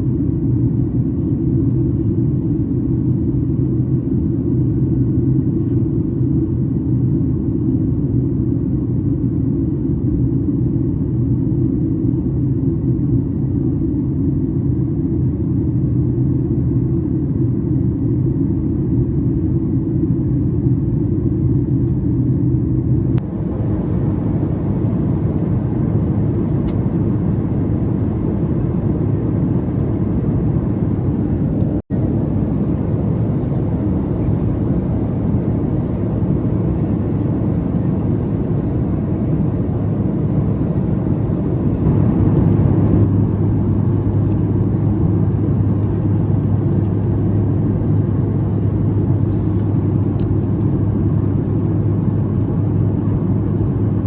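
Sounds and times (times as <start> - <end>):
airliner cabin airflow roar: 0.0 - 54.0
low engine drone: 20.4 - 54.0.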